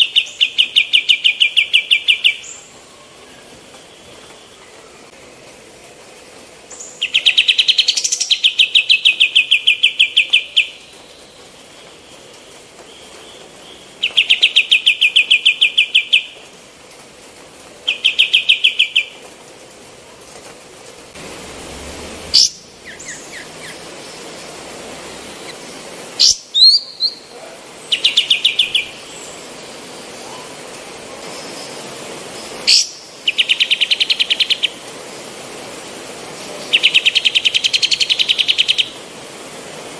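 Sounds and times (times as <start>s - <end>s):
bird singing rattling trills: 22.3s - 30.6s.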